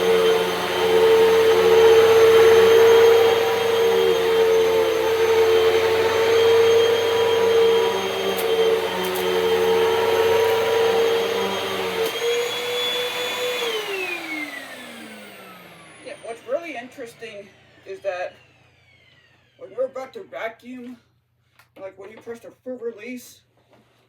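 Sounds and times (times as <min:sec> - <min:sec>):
vacuum brush roll low hum: 0:00.0 - 0:19.2
upright vacuum motor whine: 0:00.0 - 0:19.8
vacuum motor winding down: 0:00.0 - 0:19.8.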